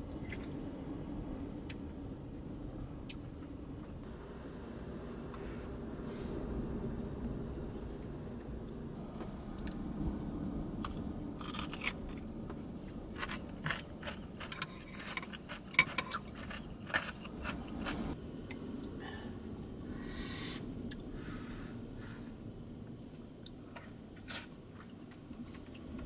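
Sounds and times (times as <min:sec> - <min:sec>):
crunching with sharp clicks: 0:13.1 - 0:18.0.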